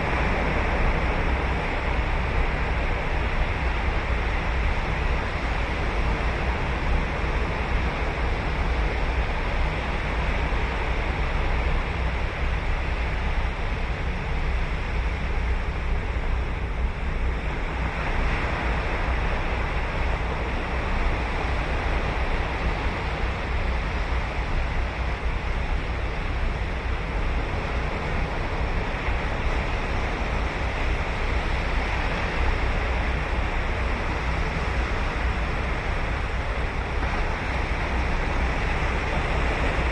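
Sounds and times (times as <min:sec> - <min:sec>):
waves breaking on beach: 0:17.4 - 0:39.9.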